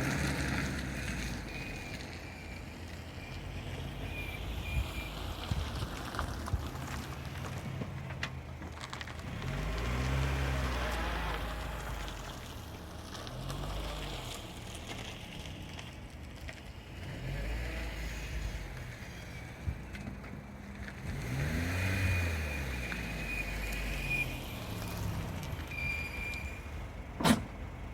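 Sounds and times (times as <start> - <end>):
road and drivetrain rumble: 0.0 - 27.9
high steady brake whine: 1.4 - 6.3, 21.9 - 27.5.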